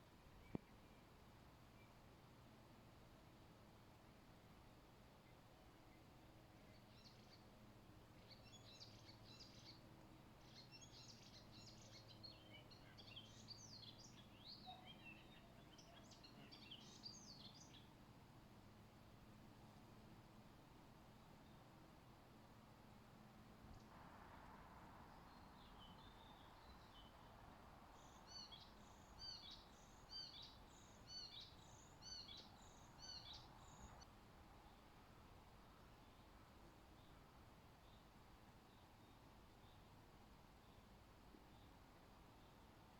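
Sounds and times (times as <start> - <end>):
songbird chirping: 0.0 - 2.2, 4.0 - 18.8, 25.0 - 42.9
background hiss: 0.0 - 42.9
faint low hum: 0.0 - 42.9
songbird chirping and warbling: 8.2 - 9.8, 10.4 - 17.9, 28.0 - 34.8.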